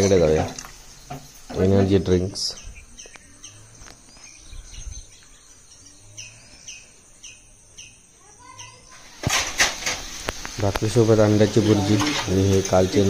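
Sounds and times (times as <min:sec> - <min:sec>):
bird calling: 0:00.6 - 0:09.2.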